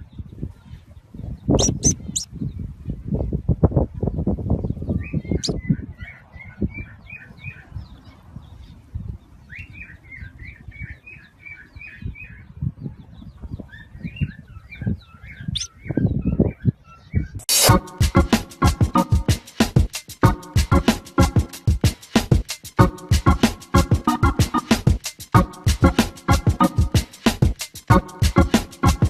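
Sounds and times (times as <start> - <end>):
bird chirping: 1.4 - 2.4, 5.0 - 8.1, 9.4 - 17.4.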